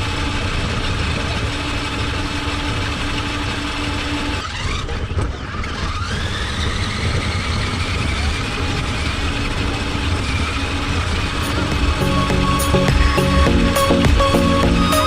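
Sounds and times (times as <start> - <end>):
toy truck electric motor whining: 2.7 - 13.4.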